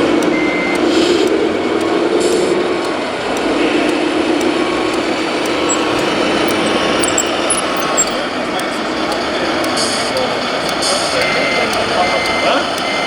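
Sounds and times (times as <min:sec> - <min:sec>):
model vehicles motor hum: 0:02.8 - 0:12.9.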